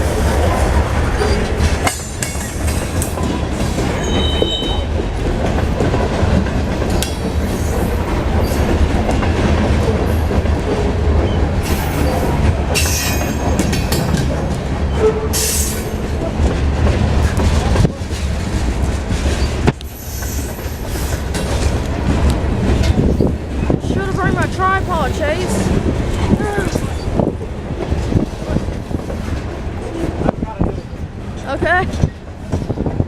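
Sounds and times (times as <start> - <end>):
freight train rumbling past: 0.0 - 33.0
wheels clicking over rail joints: 0.5 - 33.0
high wheel squeal: 4.0 - 4.9.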